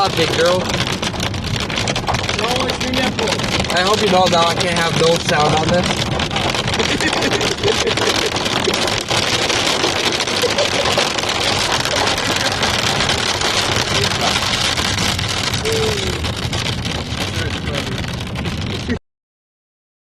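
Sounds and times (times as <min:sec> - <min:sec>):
heavy rain drumming on car roof: 0:00.0 - 0:19.0
road noise: 0:00.0 - 0:19.0.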